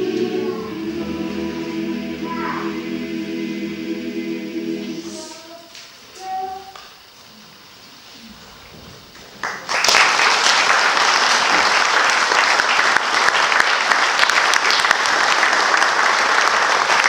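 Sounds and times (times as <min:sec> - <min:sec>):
audience applause: 0:09.1 - 0:17.0.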